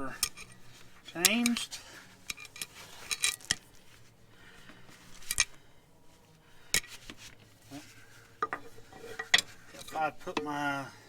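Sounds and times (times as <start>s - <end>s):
metal scraping: 0.0s - 3.9s, 7.7s - 10.4s
metal wrench clinks and clicks: 2.3s - 3.6s.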